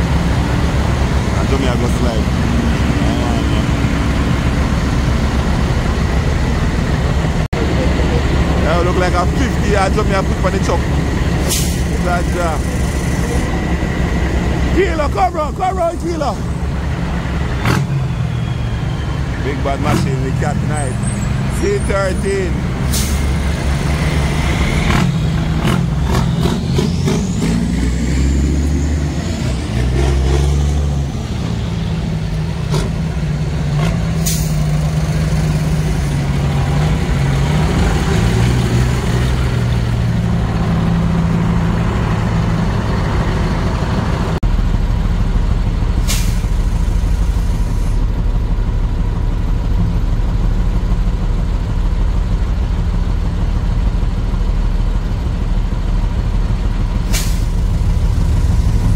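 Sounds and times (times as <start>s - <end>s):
heavy diesel engines running: 0.0s - 58.9s
air brake hisses: 11.4s - 11.9s, 22.8s - 23.4s, 46.0s - 48.0s, 57.1s - 57.6s.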